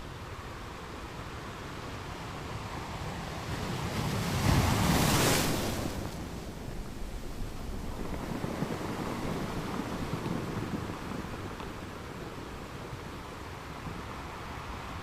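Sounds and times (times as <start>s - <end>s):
ocean waves breaking: 3.1s - 11.6s.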